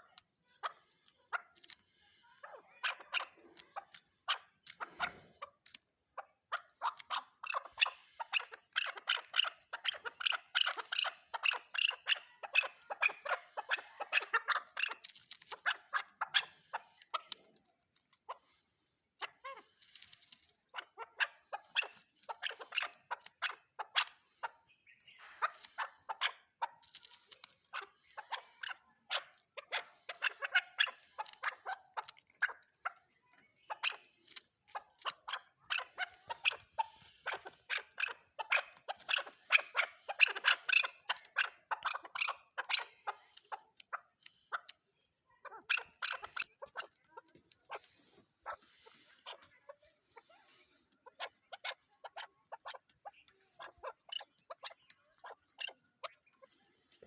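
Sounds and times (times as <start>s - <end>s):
partridge clucking calls: 0.0s - 57.0s.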